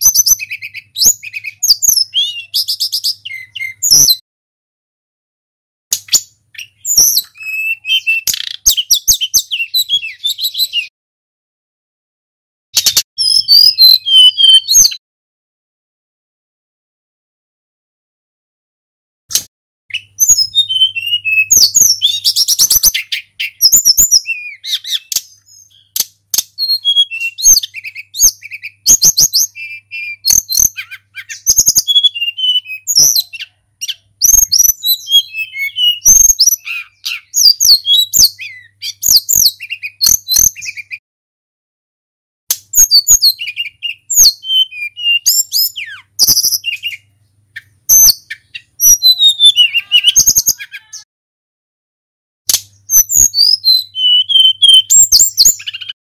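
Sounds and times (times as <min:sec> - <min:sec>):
songbird singing chattering song: 0:00.0 - 0:04.2, 0:05.9 - 0:10.9, 0:12.8 - 0:15.0, 0:19.3 - 0:41.0, 0:42.5 - 0:51.1, 0:52.5 - 0:56.0.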